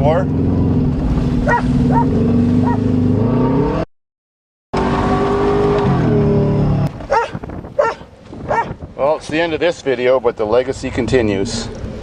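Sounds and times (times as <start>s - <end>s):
car engine running: 0.0s - 3.3s
dog barking: 1.4s - 2.8s, 7.1s - 8.8s.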